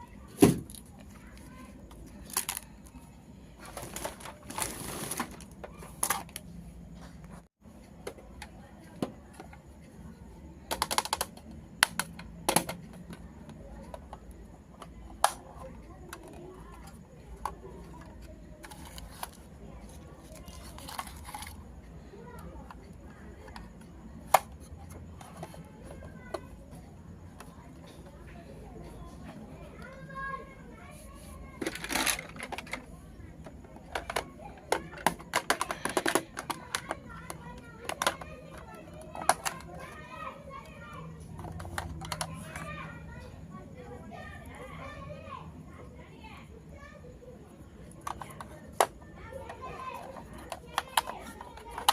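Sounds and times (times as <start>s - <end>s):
plastic toy clicks and taps: 2.3s - 2.7s, 6.0s - 6.4s, 10.6s - 21.6s, 22.3s - 26.5s, 31.6s - 39.9s, 41.4s - 42.7s, 47.9s - 51.9s.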